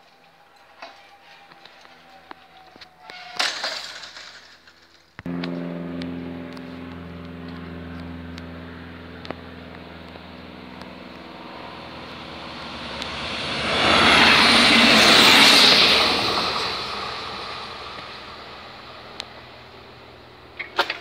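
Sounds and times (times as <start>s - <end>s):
train passing at speed: 5.3s - 20.6s.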